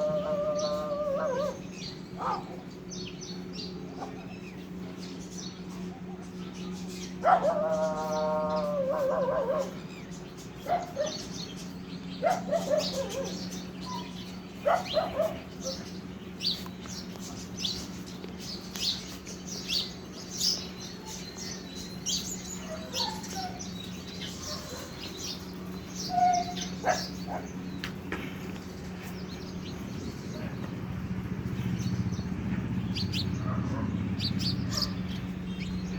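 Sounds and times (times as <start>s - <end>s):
lower pitched animal calls: 0.0s - 2.6s, 26.0s - 27.5s
small birds chirping: 0.0s - 35.9s
steady low hum: 0.0s - 35.9s.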